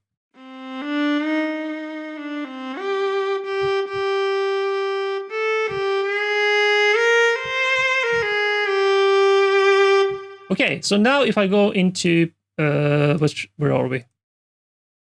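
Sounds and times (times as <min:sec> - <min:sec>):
viola playing legato: 0:00.4 - 0:10.8.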